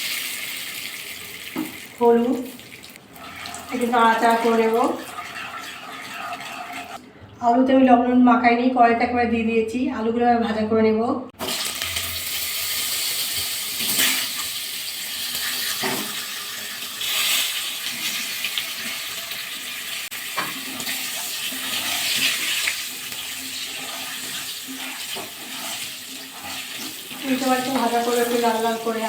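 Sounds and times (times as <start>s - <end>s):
potatoes sizzling in hot oil: 0.0s - 3.5s, 11.4s - 29.0s.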